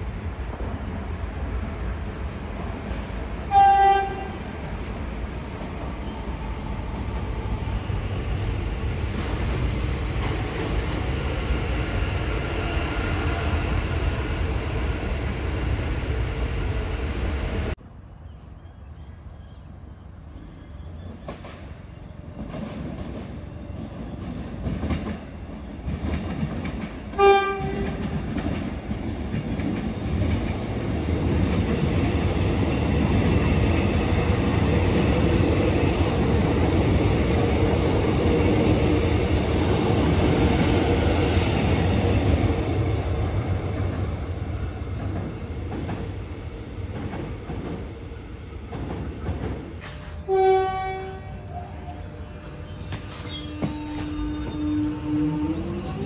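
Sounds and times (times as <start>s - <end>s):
electric train rumble: 0.0s - 17.8s, 22.2s - 56.0s
train horn toot: 3.5s - 4.5s, 27.1s - 28.0s, 49.8s - 56.0s.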